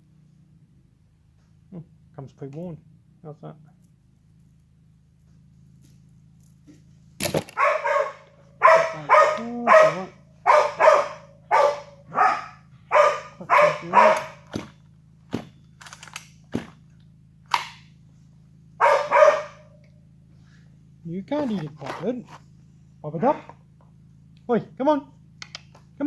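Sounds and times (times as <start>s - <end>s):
dog barking: 7.5s - 14.5s, 18.8s - 19.8s.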